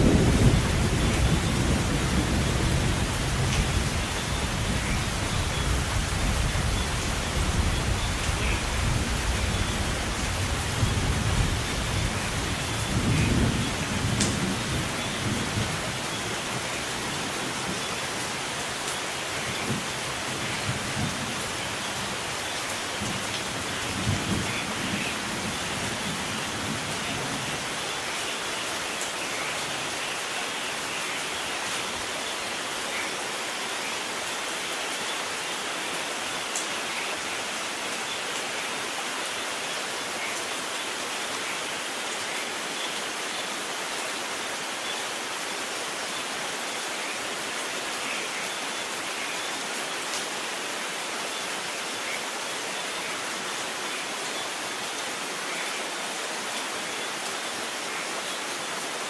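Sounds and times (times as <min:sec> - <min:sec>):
low thunder rumbling: 0:00.0 - 0:05.2
heavy rain falling: 0:00.0 - 0:59.0.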